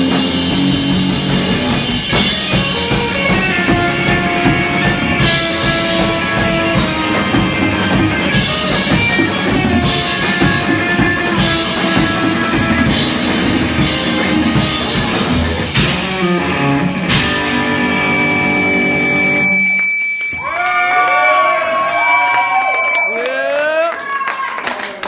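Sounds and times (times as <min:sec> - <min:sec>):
live rock band: 0:00.0 - 0:21.9.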